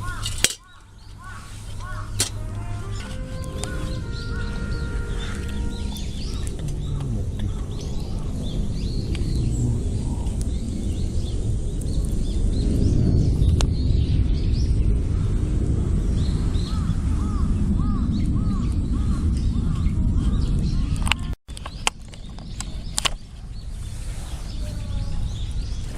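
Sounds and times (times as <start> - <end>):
repeated short bird calls: 0.0 - 11.1
steady low rumble: 0.0 - 25.9
wild birds calling: 0.0 - 25.9.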